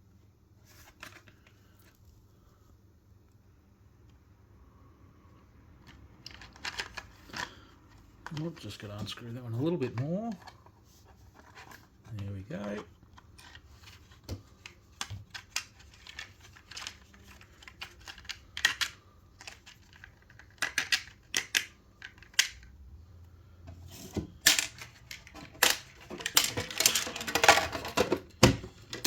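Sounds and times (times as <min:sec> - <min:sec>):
packaging rustling and clatter: 0:23.9 - 0:29.0.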